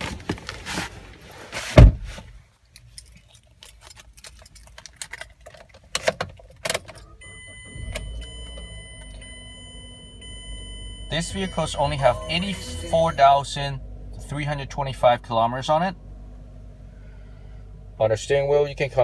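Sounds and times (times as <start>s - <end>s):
keys jangling and clicking: 2.8s - 5.9s
car engine idling: 6.4s - 19.0s.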